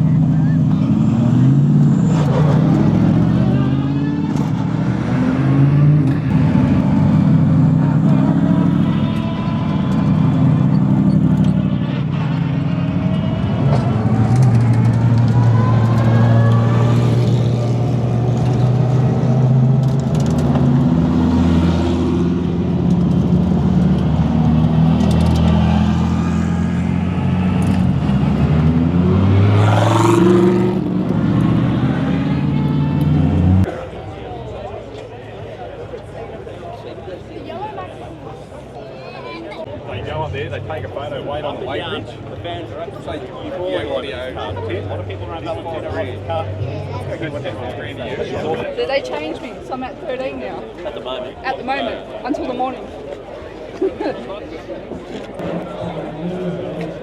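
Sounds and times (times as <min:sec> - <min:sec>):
engine revving sharply: 0:00.9 - 0:33.8
race car engines idling: 0:06.0 - 0:25.8.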